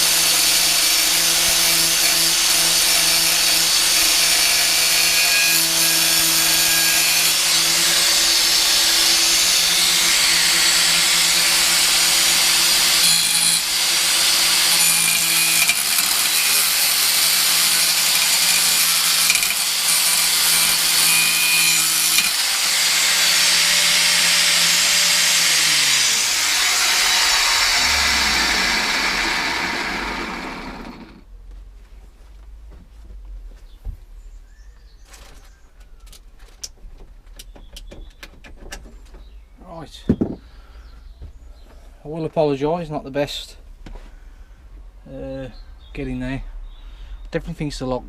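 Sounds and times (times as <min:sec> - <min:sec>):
angle grinder cutting metal: 0:00.0 - 0:31.2.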